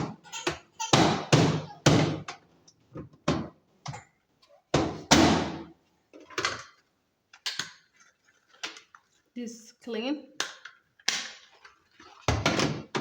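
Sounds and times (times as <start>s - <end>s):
water splashing: 11.4s - 12.9s.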